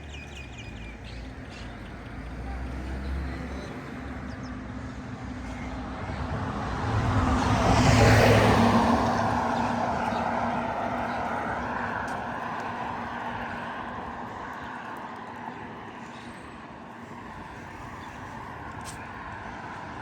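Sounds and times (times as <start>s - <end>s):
motor vehicle passing by: 5.6s - 14.0s.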